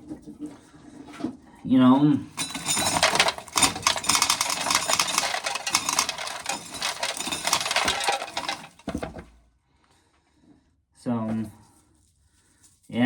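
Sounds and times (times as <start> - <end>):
corn kernels rattling off: 2.4 - 9.2.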